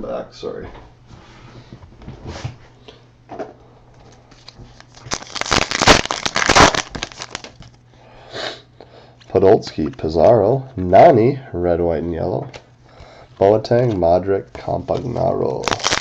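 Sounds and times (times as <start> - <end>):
plastic wrapper tearing and crinkling: 4.4 - 7.7, 15.5 - 16.0.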